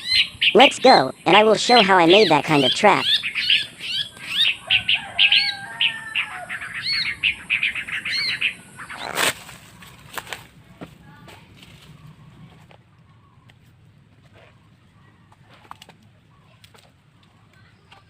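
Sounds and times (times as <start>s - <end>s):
small bird chirping: 0.0s - 10.0s.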